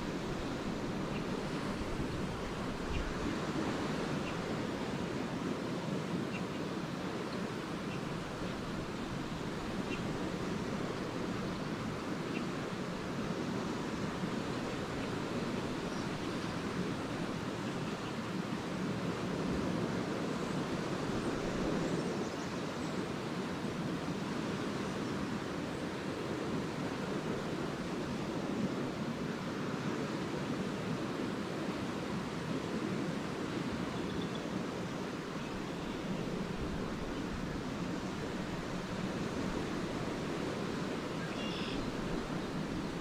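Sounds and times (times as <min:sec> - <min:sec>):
waves washing onto shore: 0:00.0 - 0:43.0
swallows twittering: 0:41.0 - 0:43.0.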